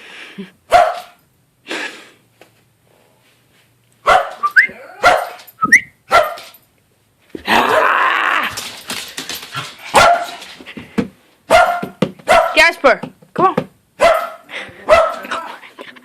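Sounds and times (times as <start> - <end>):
dog barking: 0.7 - 1.2, 4.0 - 5.5, 6.1 - 6.6, 9.9 - 10.4, 11.5 - 12.7, 14.0 - 15.4.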